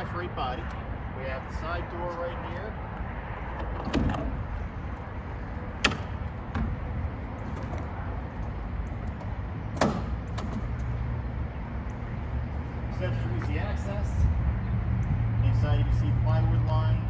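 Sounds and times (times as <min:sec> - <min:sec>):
steady low rumble: 0:00.0 - 0:17.0
truck door metallic clanks: 0:03.5 - 0:04.8, 0:05.7 - 0:11.0.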